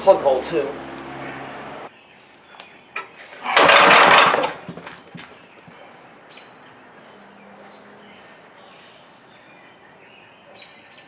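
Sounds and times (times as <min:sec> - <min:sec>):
tractor engine turning over: 0:03.3 - 0:05.4.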